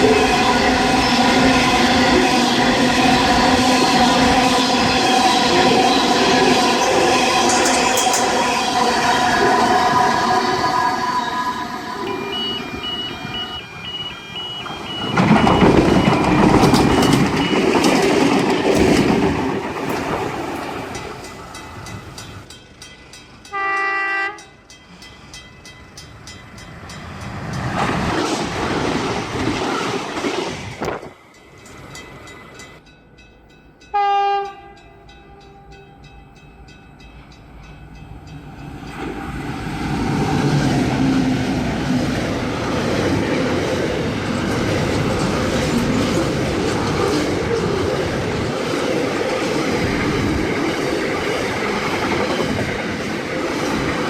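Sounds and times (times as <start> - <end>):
trains passing at speed: 0.0 - 54.0
train horn blasts: 23.5 - 24.5, 33.9 - 35.8.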